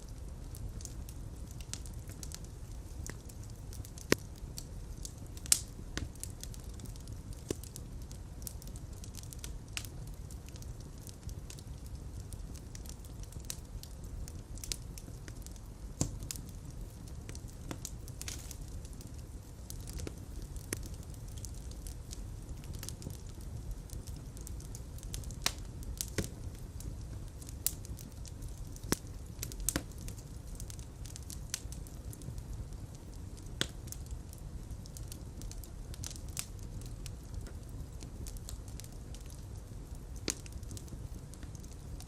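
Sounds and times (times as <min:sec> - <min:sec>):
fire crackling in fireplace: 0:00.0 - 0:42.0.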